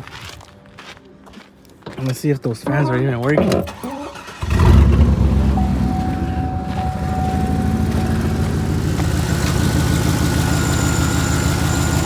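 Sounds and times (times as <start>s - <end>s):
truck engine starting and idling: 3.4s - 12.0s.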